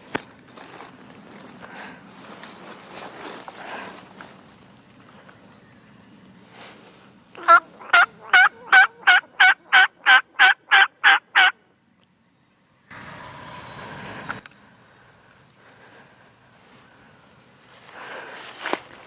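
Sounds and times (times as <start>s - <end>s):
rustling noise: 0.0s - 4.8s, 17.6s - 19.0s
turkey yelps: 7.4s - 11.6s.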